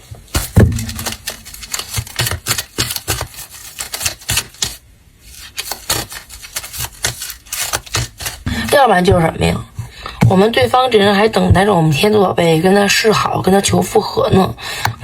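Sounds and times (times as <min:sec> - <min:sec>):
cards being shuffled: 0:00.1 - 0:08.8.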